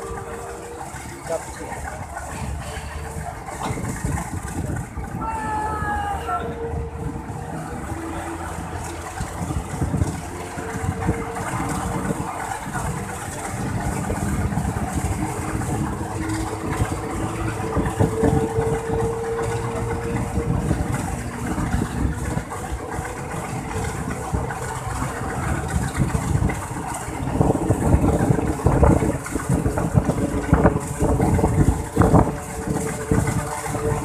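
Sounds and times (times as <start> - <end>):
train rumbling: 0.0 - 34.0.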